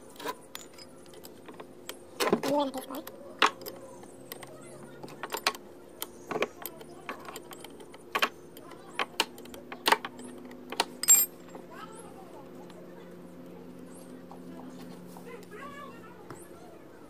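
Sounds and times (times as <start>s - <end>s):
faint steady hum: 0.0s - 17.0s
metallic clicks of spanner and parts: 2.9s - 11.3s.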